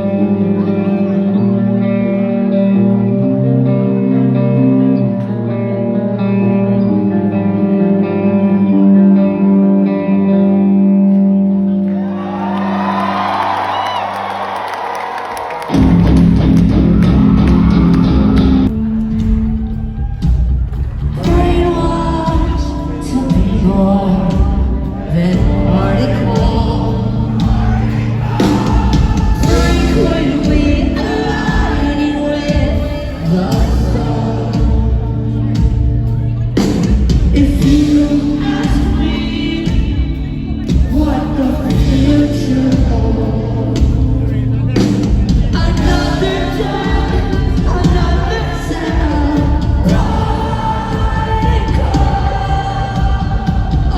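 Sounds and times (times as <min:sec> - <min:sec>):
electric guitar: 0:00.0 - 0:53.9
live rock band playing: 0:00.0 - 0:53.9
drums: 0:12.2 - 0:53.9.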